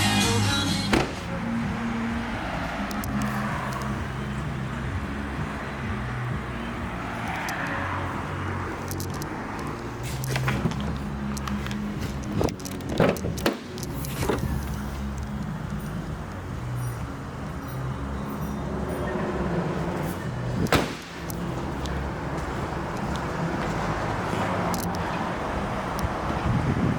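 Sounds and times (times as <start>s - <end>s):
car engine idling: 0.0s - 26.9s
sharp clunks: 0.9s - 1.3s, 12.0s - 14.6s, 20.6s - 21.5s.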